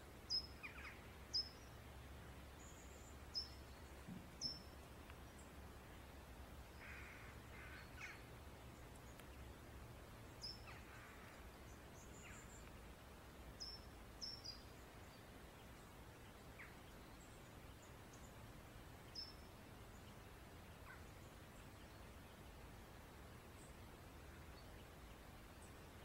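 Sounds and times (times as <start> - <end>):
birds chirping: 0.2 - 26.0
rough low bird calls: 6.6 - 9.5, 10.2 - 12.9, 19.0 - 22.4.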